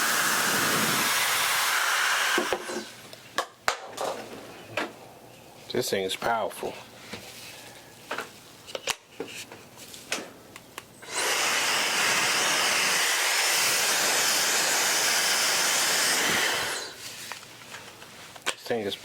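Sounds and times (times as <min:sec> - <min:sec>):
blow dryer rushing air: 0:00.0 - 0:03.0, 0:11.0 - 0:17.0.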